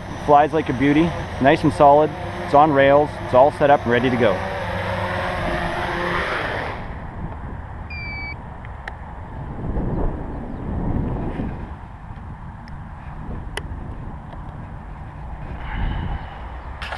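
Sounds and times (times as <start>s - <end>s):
wind rumbling on microphone: 0.0s - 16.9s
short high beep: 7.9s - 8.4s.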